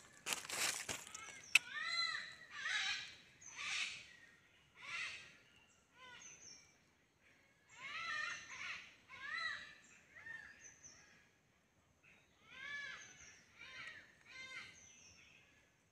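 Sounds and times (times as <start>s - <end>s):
bird calling: 0.0s - 6.8s, 7.6s - 11.2s.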